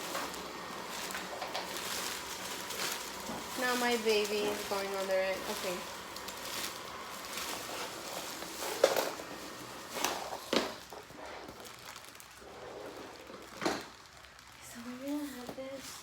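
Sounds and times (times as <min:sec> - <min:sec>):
robot vacuum whirring: 0:00.0 - 0:11.6.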